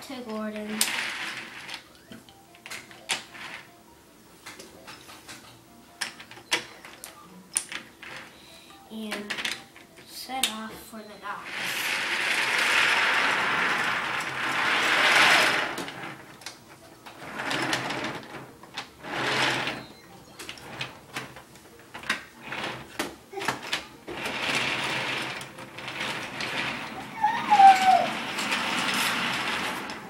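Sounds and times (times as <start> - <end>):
toy train whirring and rattling: 0.6 - 3.7, 11.3 - 19.8, 20.4 - 30.0.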